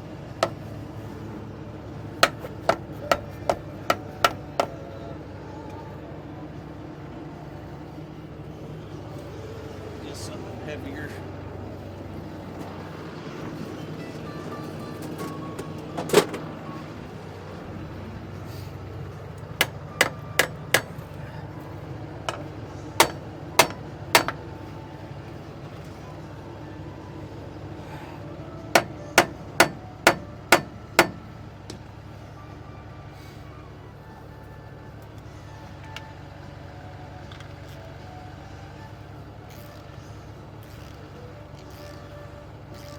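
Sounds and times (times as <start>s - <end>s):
low hum: 0.0s - 39.4s
hammer striking metal: 0.4s - 0.7s, 2.2s - 4.8s, 19.6s - 21.2s, 22.3s - 24.5s, 28.7s - 31.3s.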